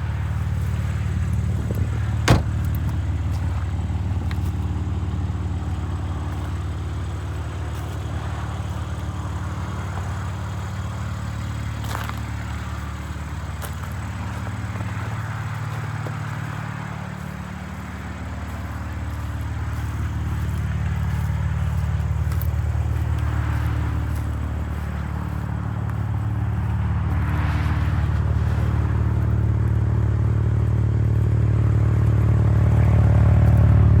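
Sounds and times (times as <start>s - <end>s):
car engine droning: 0.0s - 34.0s.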